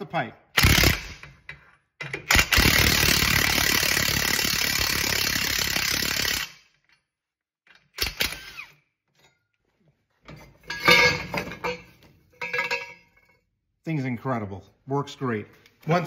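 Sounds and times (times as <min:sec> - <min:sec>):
power wrench running: 0:02.3 - 0:06.6, 0:08.0 - 0:08.8.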